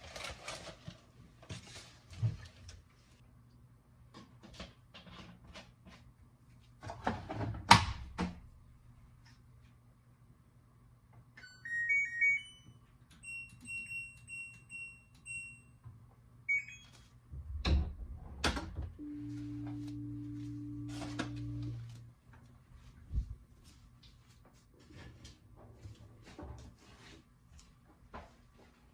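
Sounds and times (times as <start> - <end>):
keypad beeps: 16.5 - 17.0
appliance hum: 17.7 - 23.8.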